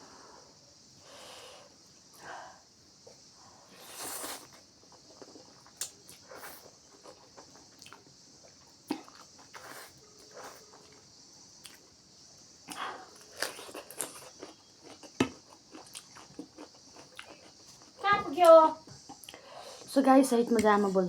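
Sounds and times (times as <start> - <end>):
person chewing and biting: 12.7 - 18.0.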